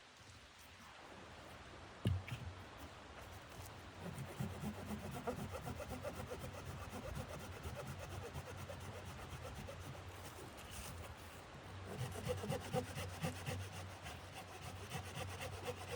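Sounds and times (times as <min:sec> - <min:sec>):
rapid scraping strokes: 0:04.0 - 0:15.9.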